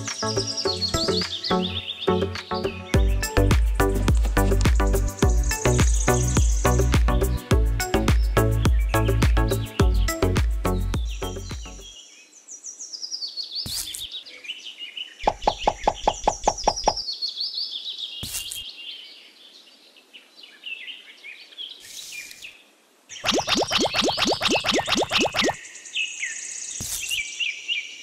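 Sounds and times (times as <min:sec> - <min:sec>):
music: 0:00.0 - 0:11.9
birds chirping: 0:00.0 - 0:28.0
quick evenly spaced knocks: 0:15.3 - 0:17.0.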